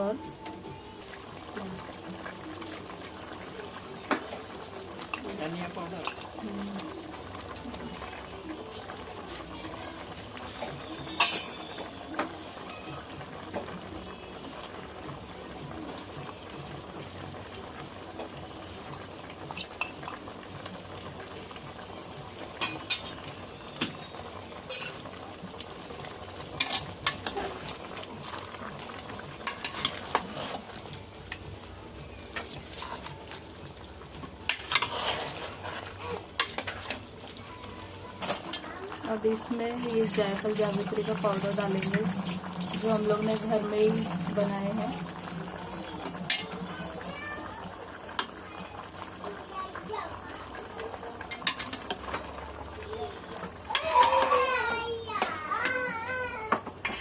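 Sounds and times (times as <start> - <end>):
chicken sizzling in a pan: 0.0 - 57.0
spoon scraping a pan: 10.6 - 13.0, 24.7 - 25.0, 29.4 - 30.8, 34.5 - 37.5, 40.0 - 46.8.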